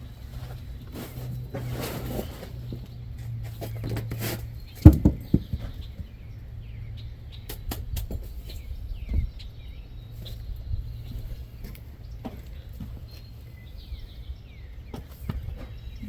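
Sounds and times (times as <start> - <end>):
birds chirping: 0.0 - 16.0
sharp knocks: 4.8 - 6.1.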